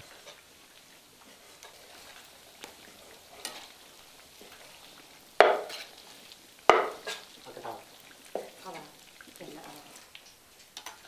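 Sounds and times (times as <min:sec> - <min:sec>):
metal ladle scraping wok: 0:00.0 - 0:00.4, 0:01.2 - 0:07.8
fat sizzling faintly in wok: 0:00.0 - 0:11.0.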